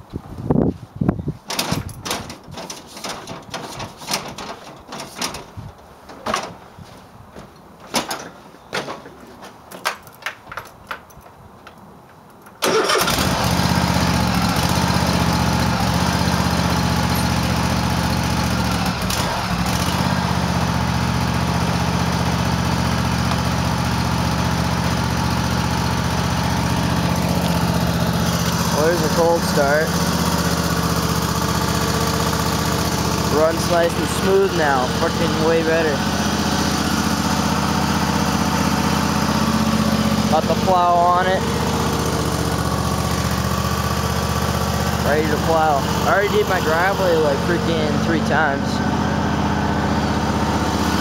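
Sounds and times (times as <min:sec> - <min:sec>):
clicks and knocks: 0:01.5 - 0:06.6, 0:07.4 - 0:12.6
lawn tractor engine running: 0:12.6 - 0:51.0.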